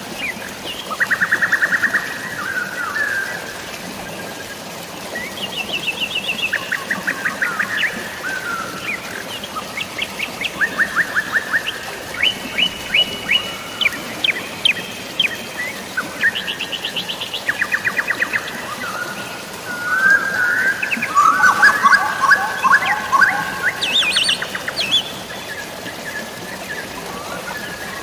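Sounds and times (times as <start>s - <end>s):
drizzling rain: 0.0s - 28.0s
flowing water: 0.0s - 28.0s
birds chirping in trills: 8.8s - 28.0s.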